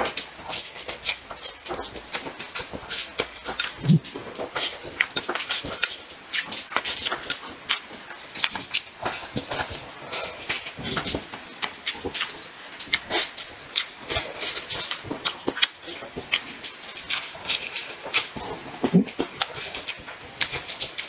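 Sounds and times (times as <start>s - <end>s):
wet lip smacks and mouth clicks: 0.5s - 4.2s, 15.5s - 21.0s.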